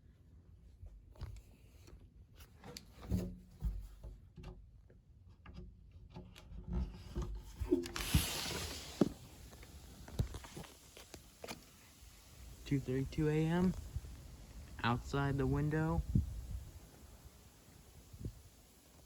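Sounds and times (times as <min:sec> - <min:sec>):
objects being handled indoors: 0:00.1 - 0:12.7
short rushing hiss: 0:07.6 - 0:19.0.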